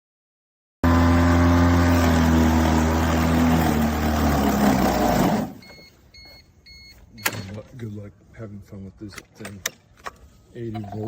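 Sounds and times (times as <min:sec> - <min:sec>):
electric lawn mower humming: 0:00.8 - 0:05.7.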